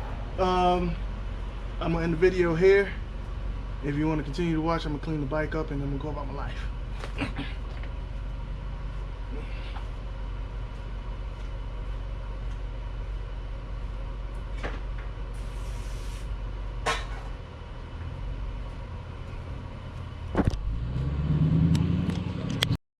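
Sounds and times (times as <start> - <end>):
motorcycle engine idling and revving: 17.7 - 22.8.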